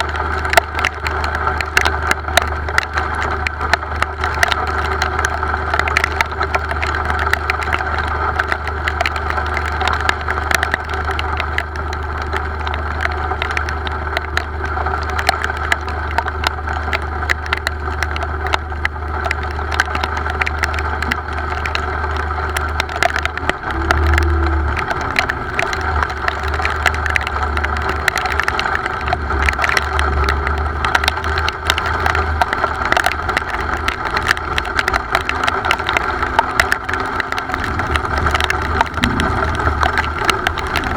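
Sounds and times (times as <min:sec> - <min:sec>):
rain tapping on hard surface: 0:00.0 - 0:40.9
low rumble: 0:18.1 - 0:30.8, 0:34.6 - 0:40.9.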